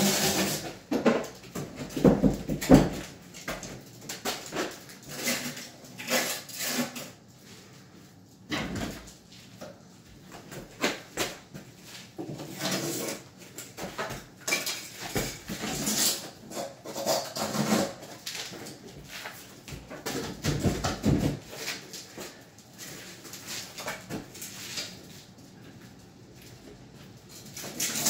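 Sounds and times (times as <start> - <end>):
wooden cabinet parts knocking: 0.9 - 3.6, 19.8 - 21.5.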